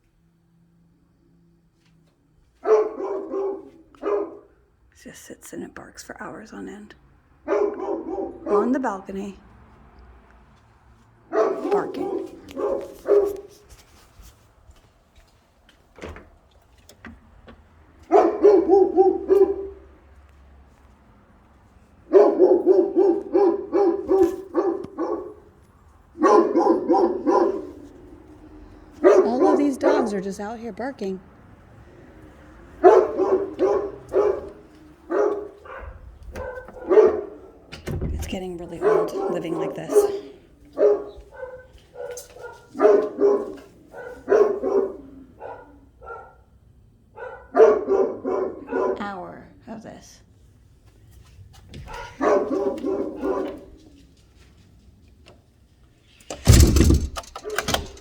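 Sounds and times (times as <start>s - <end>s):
dog barking: 2.6s - 4.7s, 7.4s - 9.1s, 11.2s - 13.7s, 18.0s - 20.0s, 22.0s - 30.4s, 32.7s - 37.7s, 38.7s - 49.2s, 51.8s - 54.0s
faint barks: 2.6s - 4.7s, 7.4s - 9.4s, 11.2s - 13.8s, 18.0s - 20.1s, 22.0s - 31.0s, 31.9s - 49.4s, 51.7s - 54.2s.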